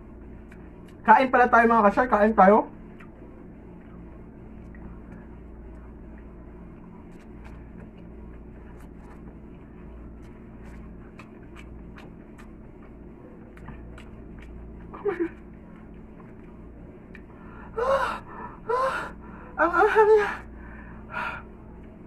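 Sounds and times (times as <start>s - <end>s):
steady low hum: 0.0s - 22.0s
person chewing noodles: 0.2s - 1.0s, 2.8s - 17.8s.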